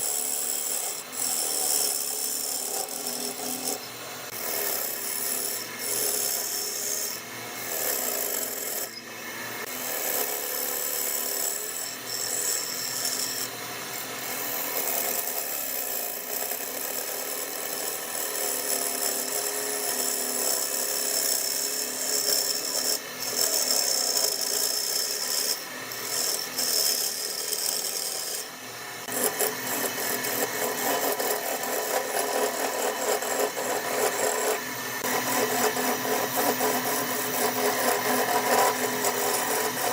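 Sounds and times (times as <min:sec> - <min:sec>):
hand tool scraping wood on lathe: 0:00.0 - 0:08.9, 0:21.2 - 0:39.9.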